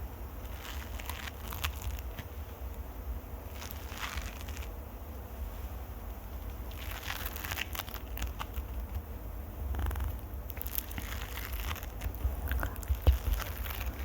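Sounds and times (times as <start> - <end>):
small clicks and crackles: 0.4 - 2.9, 3.5 - 4.8, 6.4 - 9.1, 9.7 - 14.0
scratching on microphone: 3.5 - 4.7, 9.8 - 14.0.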